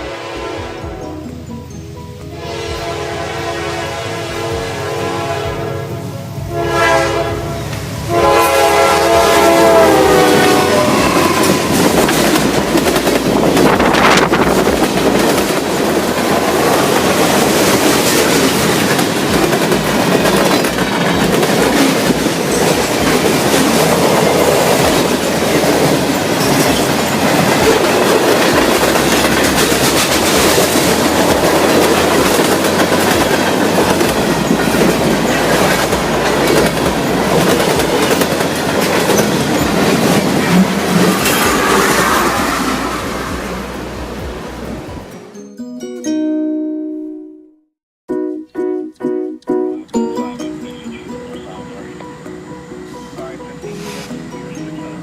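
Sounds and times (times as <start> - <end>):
train horn chord: 0.0 - 1.6, 2.2 - 12.0
train wheels clicking over rail joints: 11.0 - 42.8.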